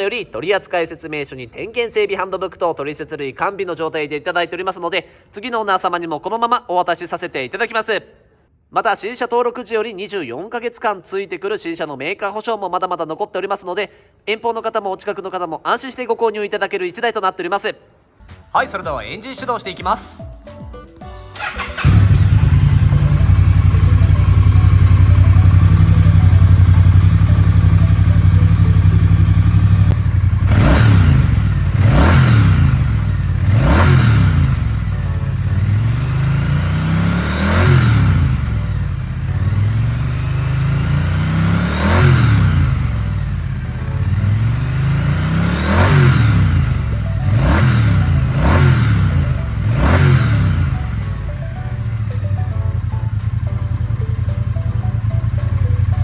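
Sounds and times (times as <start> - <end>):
motorcycle engine idling and revving: 21.4 - 56.0.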